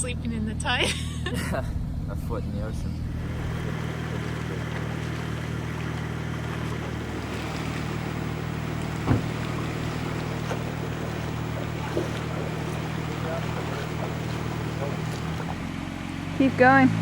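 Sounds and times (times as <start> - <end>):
engine idling: 0.0 - 17.0
short thump: 8.8 - 12.3.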